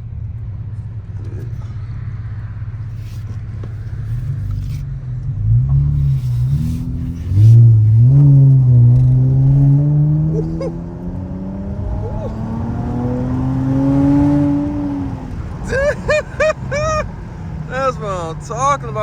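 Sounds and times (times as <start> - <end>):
car engine accelerating hard: 1.1 - 19.0
short rising and falling calls: 11.7 - 14.7.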